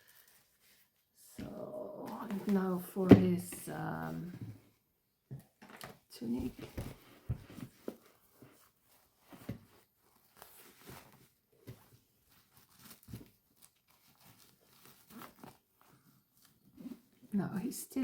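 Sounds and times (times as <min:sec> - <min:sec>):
fabric rustling: 0:06.2 - 0:17.3.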